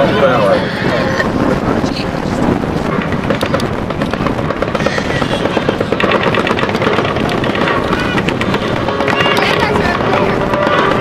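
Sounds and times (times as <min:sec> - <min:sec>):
loud steady background din: 0:00.0 - 0:11.0
machine-gun fire: 0:03.1 - 0:11.0.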